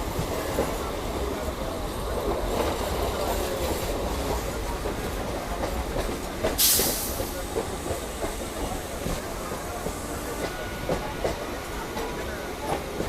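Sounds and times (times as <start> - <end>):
electric train rumbling: 0.0 - 13.0
burst of hiss: 6.6 - 7.4.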